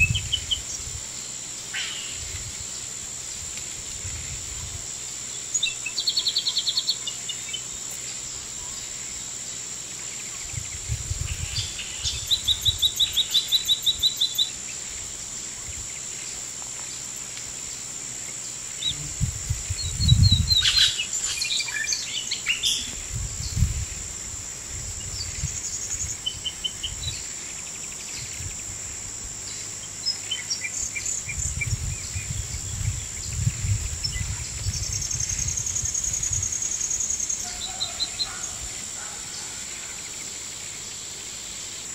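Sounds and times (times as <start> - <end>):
high insect drone: 0.0 - 41.9
birds calling in fast trills: 10.1 - 16.2, 19.8 - 23.5, 29.5 - 41.9.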